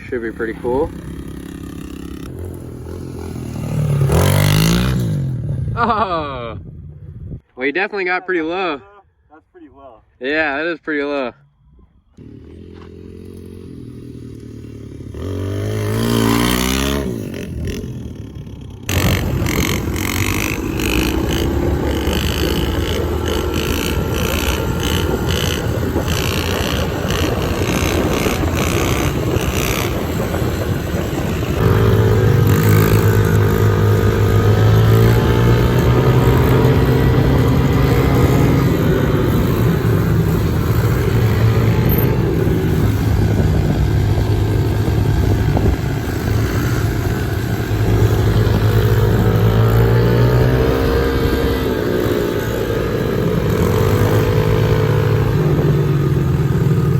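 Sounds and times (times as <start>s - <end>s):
pit bike engine revving: 0.0s - 6.5s, 12.2s - 56.9s.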